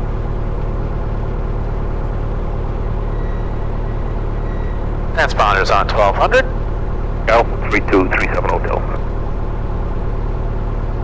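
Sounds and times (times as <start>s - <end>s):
airplane piston engine idling: 3.4s - 9.2s.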